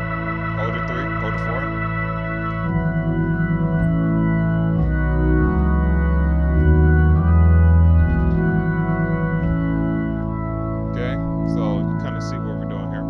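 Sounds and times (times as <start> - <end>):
organ sustained chords: 0.0 - 13.0.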